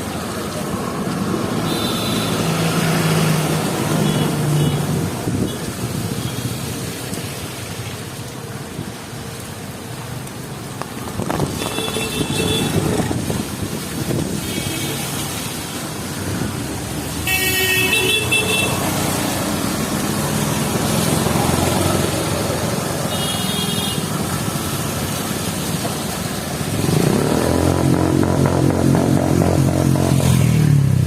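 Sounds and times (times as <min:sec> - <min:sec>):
rain hissing on wet road: 0:00.0 - 0:28.2
traffic engines: 0:00.0 - 0:31.0
vehicle horns honking: 0:11.6 - 0:13.0, 0:17.2 - 0:19.0, 0:23.1 - 0:24.1.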